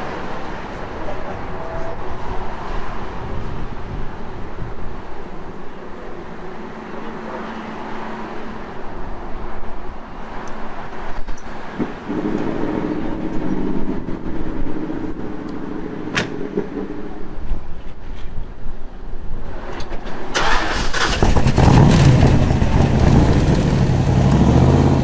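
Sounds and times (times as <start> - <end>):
car engine running: 21.2 - 25.0.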